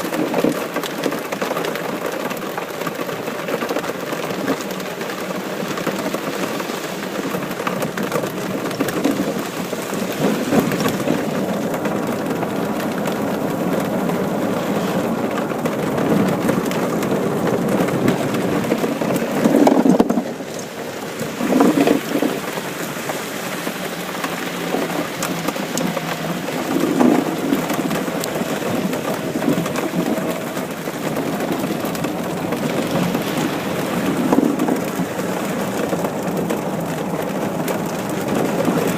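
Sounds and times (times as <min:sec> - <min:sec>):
steady rain: 0:00.0 - 0:38.9
thunder rumbling: 0:08.2 - 0:38.9.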